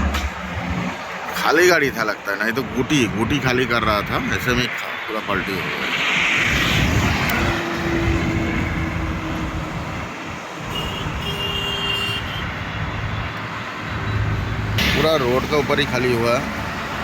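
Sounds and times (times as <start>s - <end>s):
highway traffic rumble: 0.0s - 17.0s.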